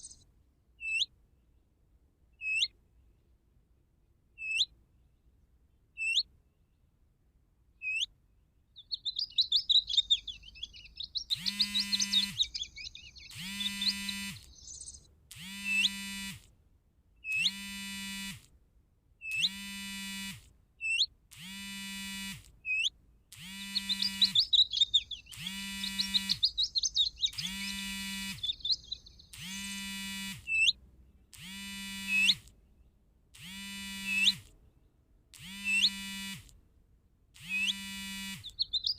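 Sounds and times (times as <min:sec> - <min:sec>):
fast warbling birdsong: 0:00.0 - 0:00.2, 0:02.4 - 0:02.7, 0:04.4 - 0:04.7, 0:06.0 - 0:06.3, 0:07.8 - 0:08.1, 0:08.7 - 0:16.3, 0:17.2 - 0:17.9, 0:19.2 - 0:19.9, 0:22.1 - 0:30.8, 0:31.4 - 0:32.5, 0:33.4 - 0:34.5, 0:35.4 - 0:36.4, 0:37.4 - 0:38.9
short rising chirps: 0:08.8 - 0:16.2, 0:22.7 - 0:30.8, 0:37.4 - 0:38.9
buzzy bird note: 0:08.8 - 0:16.4, 0:17.2 - 0:18.5, 0:19.2 - 0:32.5, 0:33.4 - 0:34.5, 0:35.4 - 0:36.5, 0:37.4 - 0:38.9.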